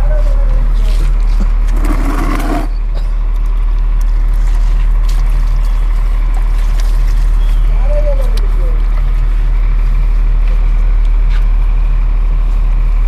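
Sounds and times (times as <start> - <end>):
machine humming: 1.2 - 3.0.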